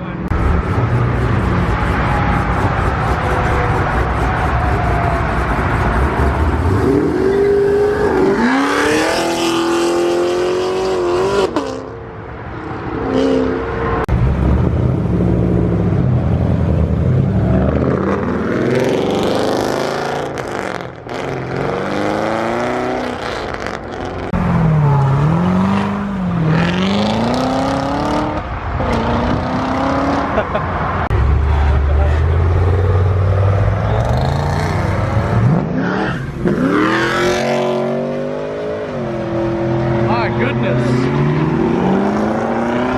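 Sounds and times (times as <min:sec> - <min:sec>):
car engines revving and accelerating: 0:00.0 - 0:42.9.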